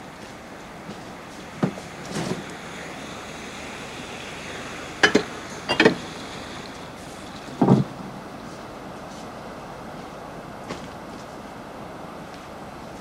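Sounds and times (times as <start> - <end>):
sea waves: 0.0 - 10.6
wind: 0.0 - 13.0.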